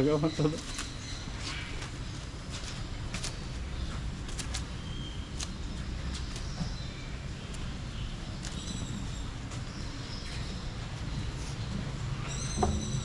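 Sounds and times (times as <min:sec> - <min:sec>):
high bird chirps: 0:12.2 - 0:13.0.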